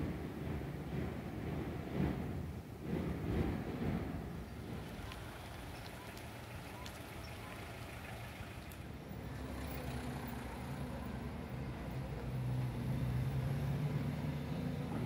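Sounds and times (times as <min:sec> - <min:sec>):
street noise: 0:00.0 - 0:15.0
vehicle engine humming: 0:04.5 - 0:15.0.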